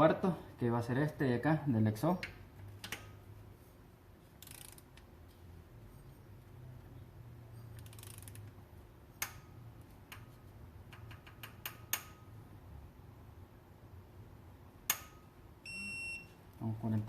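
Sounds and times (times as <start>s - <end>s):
torque wrench ratchet clicking: 4.4s - 5.0s, 7.8s - 8.5s.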